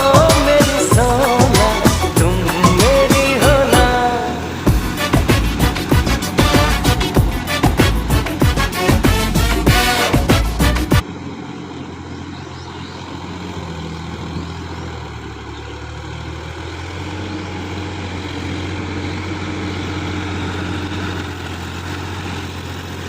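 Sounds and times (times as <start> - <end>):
background music: 0.0 - 11.0
tractor diesel engine running: 0.0 - 23.0.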